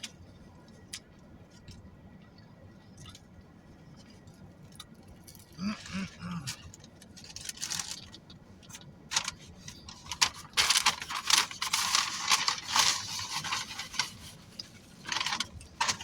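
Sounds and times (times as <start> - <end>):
food packaging crinkling: 7.0 - 16.0.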